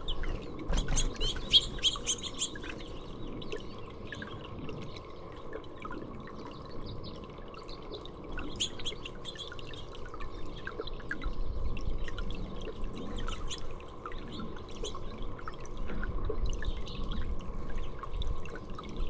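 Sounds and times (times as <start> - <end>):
songbirds chirping: 0.0 - 5.4
water dripping and trickling: 0.0 - 19.0.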